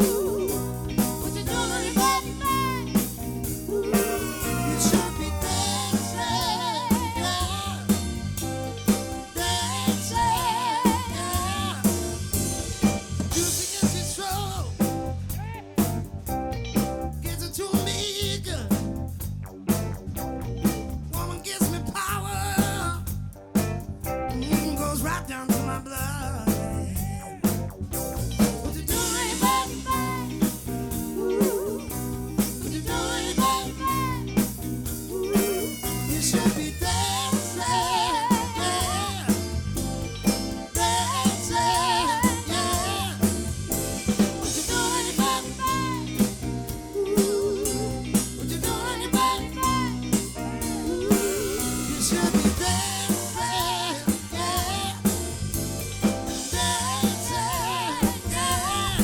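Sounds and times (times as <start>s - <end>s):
wavering lead voice: 0.0s - 8.4s, 28.9s - 39.5s, 44.1s - 55.1s
drum kit beat: 0.0s - 59.0s
soul-funk band playing: 0.0s - 59.0s.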